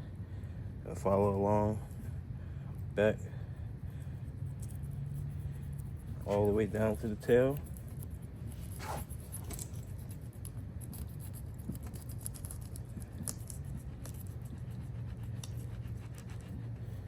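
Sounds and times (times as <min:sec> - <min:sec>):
steady low hum: 0:00.0 - 0:17.0
knife scraping fish: 0:08.0 - 0:10.0.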